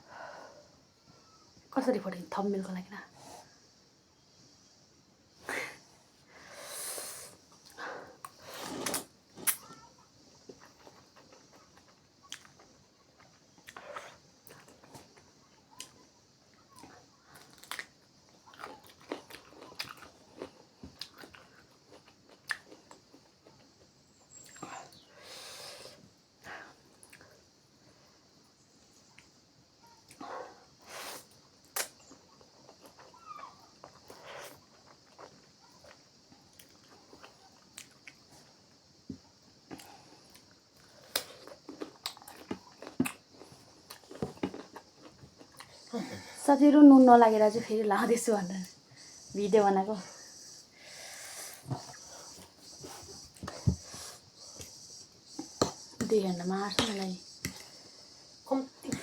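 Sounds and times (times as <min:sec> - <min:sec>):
person chewing crunchy food: 0:10.5 - 0:15.9, 0:16.8 - 0:24.7, 0:31.8 - 0:38.5, 0:39.6 - 0:46.2.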